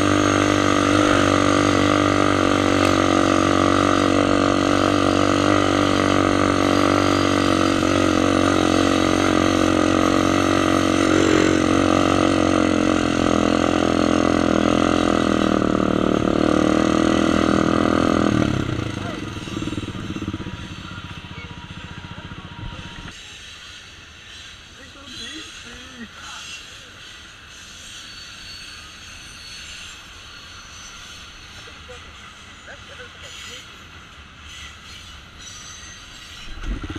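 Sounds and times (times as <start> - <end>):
atv engine running: 0.0 - 23.1, 36.6 - 36.9.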